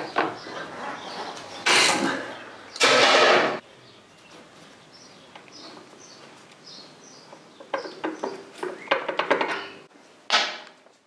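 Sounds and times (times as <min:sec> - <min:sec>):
sharp clicks and knocks: 0:07.3 - 0:10.8.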